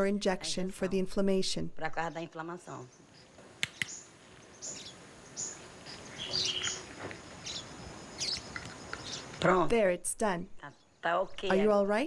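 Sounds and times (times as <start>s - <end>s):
birds chirping: 1.8s - 11.9s
sharp clicks: 3.6s - 4.0s.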